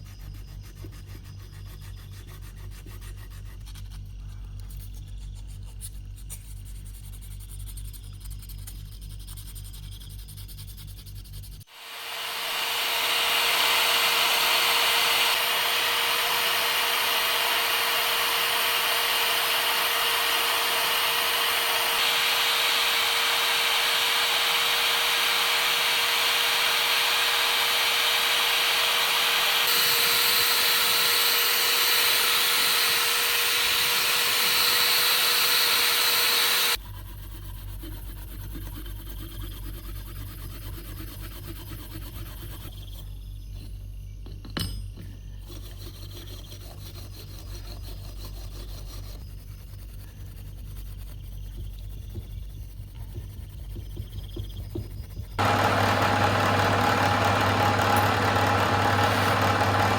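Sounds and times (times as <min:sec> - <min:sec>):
power sander grinding: 0:11.7 - 0:36.8, 0:55.4 - 0:59.9.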